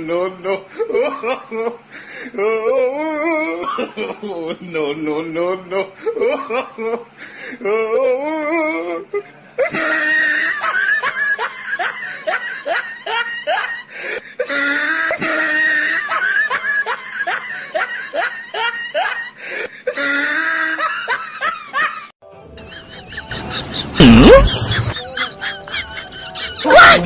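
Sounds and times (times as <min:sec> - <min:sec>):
hearty human laughter: 0:05.7 - 0:27.0.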